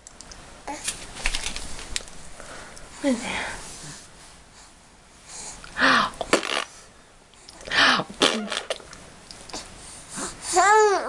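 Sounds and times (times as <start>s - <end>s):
baby sneeze-like noises: 7.8s - 8.8s.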